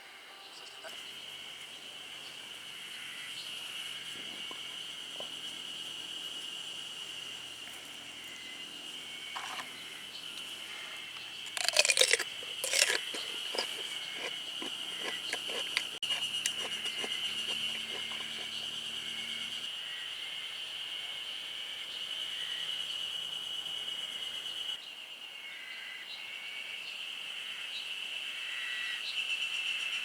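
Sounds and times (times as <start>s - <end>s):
high insect trill: 0.6s - 19.7s
loud crunching: 11.5s - 18.8s.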